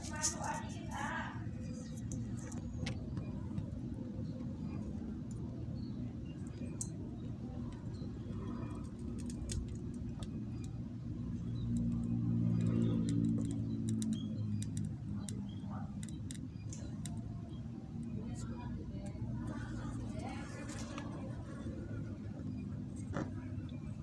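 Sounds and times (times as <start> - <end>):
low engine-like hum: 0.0 - 24.0
faint clicks: 6.4 - 10.8, 11.4 - 17.3.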